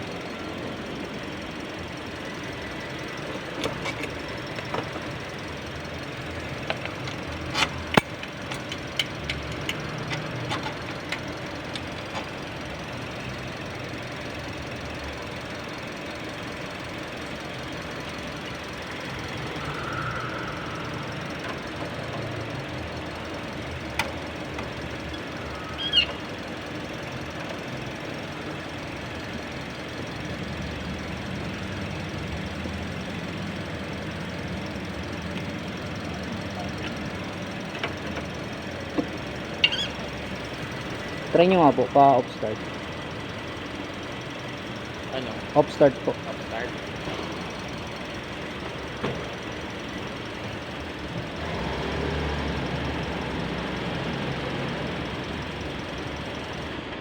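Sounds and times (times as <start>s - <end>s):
car engine idling: 0.0s - 57.0s
sharp clicks and knocks: 3.2s - 5.3s, 6.3s - 12.5s, 23.6s - 25.4s, 34.1s - 41.8s, 48.4s - 50.0s
short high squeak: 39.6s - 40.0s.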